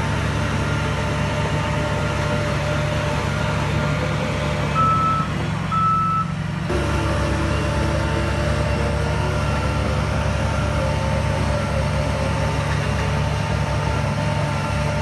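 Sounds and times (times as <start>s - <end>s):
heavy diesel machinery running: 0.0s - 15.0s
reversing alarm beeping: 4.8s - 6.4s.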